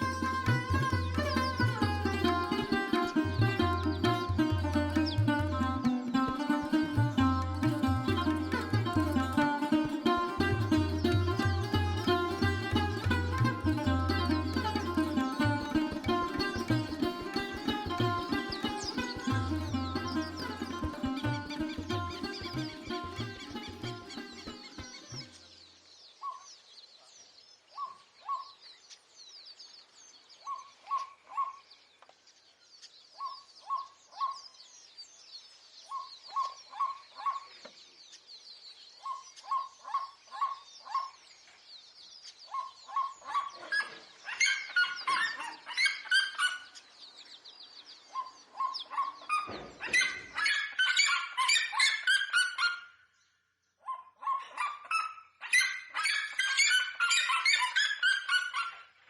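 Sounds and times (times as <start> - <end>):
birds calling: 0.0 - 25.6.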